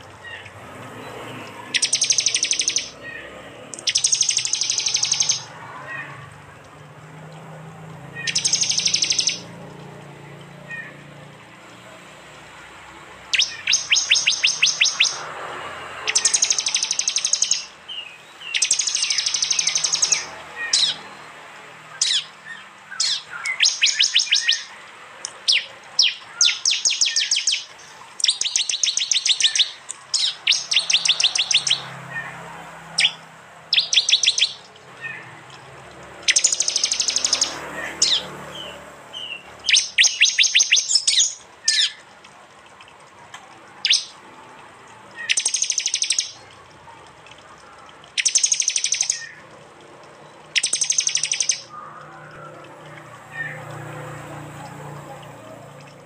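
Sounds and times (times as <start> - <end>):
bird clicking trills: 1.4 - 3.0, 3.7 - 5.6, 8.2 - 9.8, 13.3 - 15.3, 16.0 - 17.8, 18.4 - 21.0, 21.9 - 31.9, 32.9 - 44.2, 45.1 - 53.6
bird single chips: 1.4 - 3.0, 3.7 - 5.5, 8.2 - 9.5, 13.3 - 15.3, 16.1 - 17.8, 18.4 - 21.0, 22.0 - 31.9, 33.0 - 34.8, 35.5 - 38.3, 39.6 - 42.2, 45.2 - 46.5, 47.5 - 49.5, 50.5 - 51.8.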